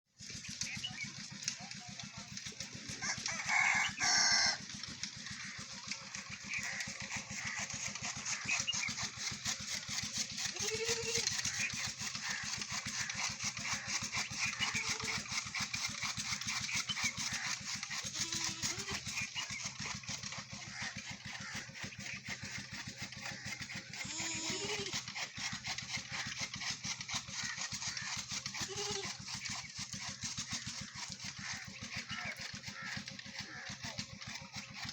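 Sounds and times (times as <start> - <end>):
rooster crowing: 3.0 - 4.6.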